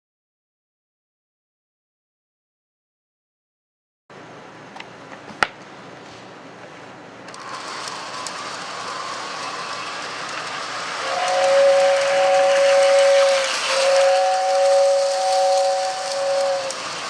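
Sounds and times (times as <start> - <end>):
toy train running on track: 7.3 - 17.0.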